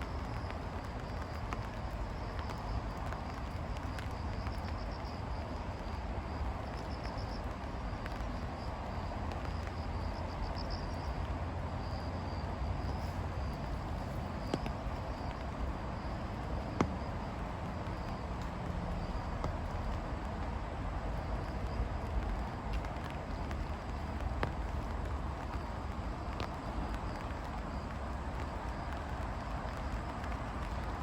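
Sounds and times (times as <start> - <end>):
insects chirping: 0.0 - 31.0.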